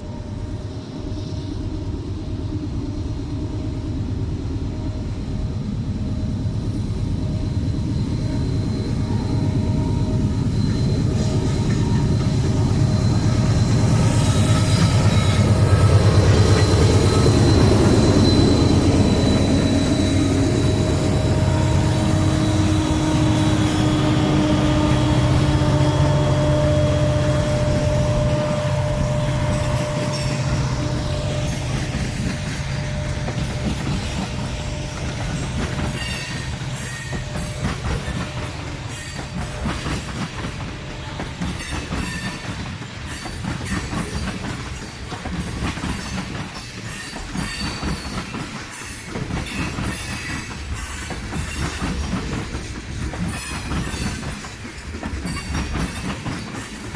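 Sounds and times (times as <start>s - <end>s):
diesel locomotive engine rumble: 0.0s - 56.9s
high wheel squeals: 7.5s - 40.1s.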